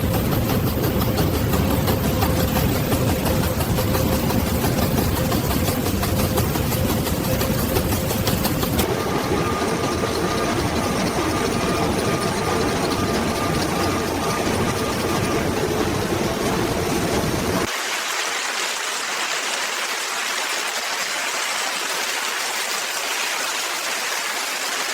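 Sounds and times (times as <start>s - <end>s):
factory machinery ticking and humming: 0.0s - 17.7s
machine whine: 0.0s - 17.7s.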